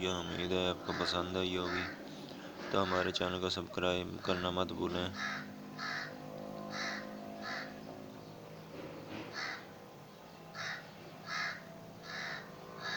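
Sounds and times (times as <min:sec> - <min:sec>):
faint steady hum: 0:00.0 - 0:12.9
bird's short harsh calls: 0:04.2 - 0:08.1, 0:08.7 - 0:09.7, 0:10.5 - 0:12.9.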